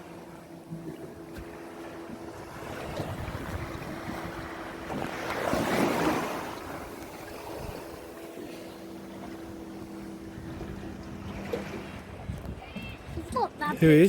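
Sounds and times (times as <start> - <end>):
wind buffeting microphone: 0.7 - 13.9
water splash: 0.8 - 12.1.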